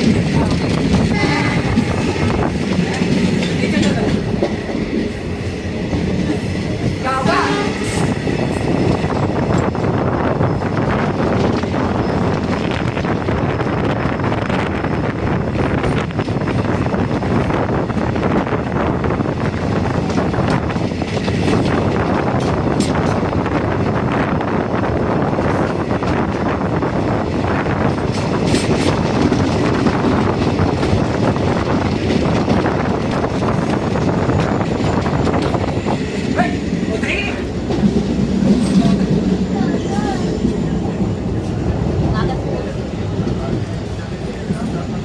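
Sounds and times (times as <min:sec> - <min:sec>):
train running on track: 0:00.0 - 0:45.0
wind buffeting microphone: 0:00.0 - 0:45.0.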